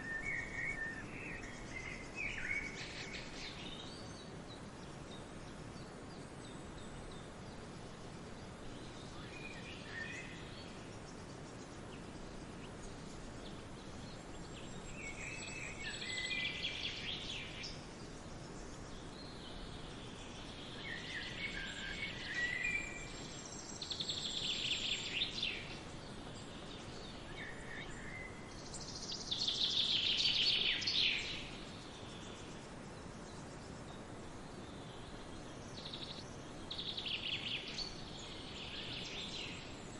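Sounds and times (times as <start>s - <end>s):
songbirds chirping and singing: 0.0s - 39.9s
steady background hiss: 0.0s - 39.9s.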